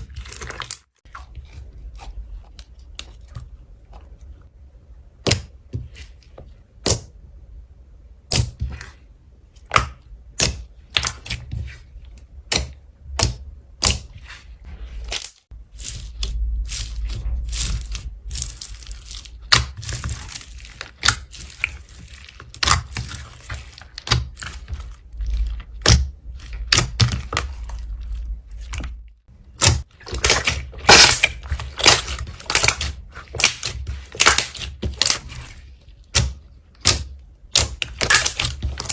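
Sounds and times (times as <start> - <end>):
slime clicking and squishing: 8.2 - 38.9.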